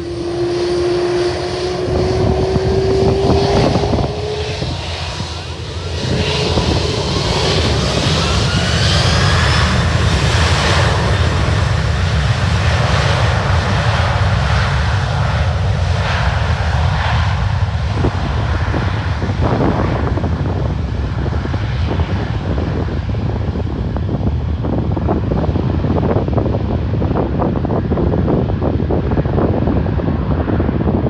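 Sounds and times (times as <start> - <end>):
engine whine rising: 0.0 - 20.2
jet engines running: 0.0 - 31.0.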